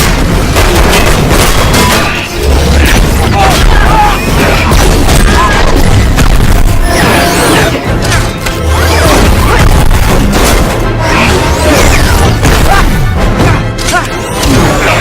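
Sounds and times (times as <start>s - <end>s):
booms and crashing impacts: 0.0s - 7.1s
dramatic film score: 0.0s - 15.0s.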